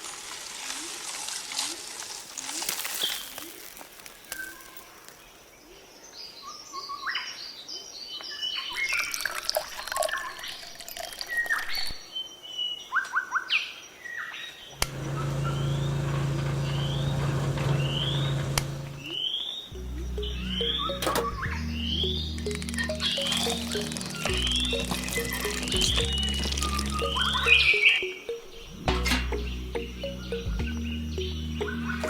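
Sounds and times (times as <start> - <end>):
birds chirping: 14.2 - 32.0.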